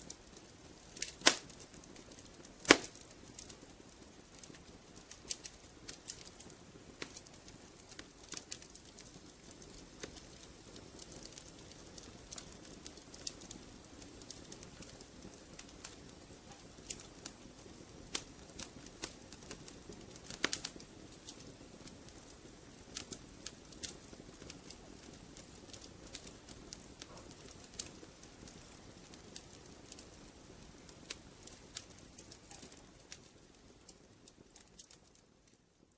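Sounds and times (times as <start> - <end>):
wood fire crackling: 0.0 - 35.9.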